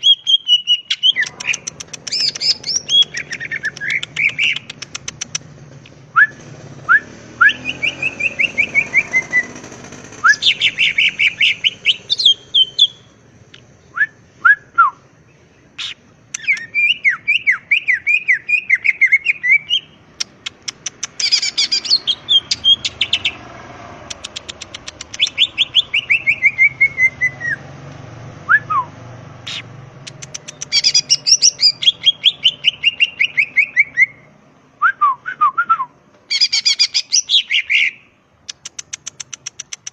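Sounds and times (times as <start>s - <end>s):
bird singing chirps and whistles: 0.0s - 4.8s, 6.2s - 9.6s, 10.2s - 13.1s, 15.8s - 20.0s, 21.2s - 23.4s, 25.1s - 27.7s, 30.3s - 38.6s.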